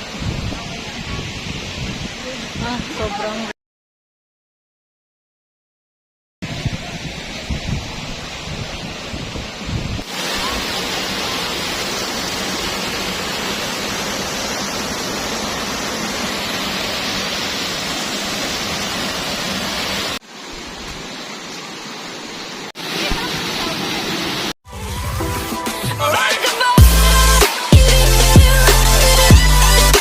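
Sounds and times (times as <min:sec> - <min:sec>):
waterfall rushing: 0:06.5 - 0:30.0.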